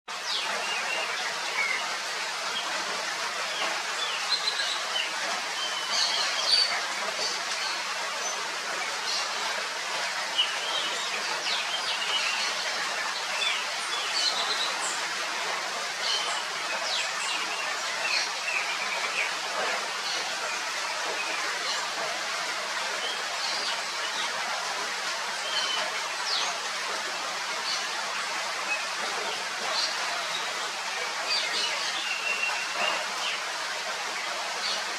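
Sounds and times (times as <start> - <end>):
rain falling: 0.1 - 34.9.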